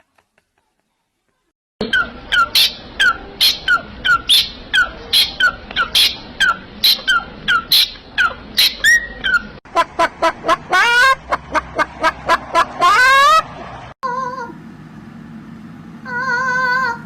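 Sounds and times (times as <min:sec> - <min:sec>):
parrot squawking: 0:01.8 - 0:13.5.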